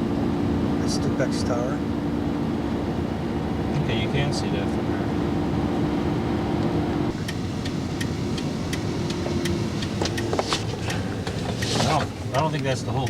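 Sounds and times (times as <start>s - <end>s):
engine and tyre rumble: 0.0s - 13.0s
light evenly spaced ticks: 7.2s - 13.0s.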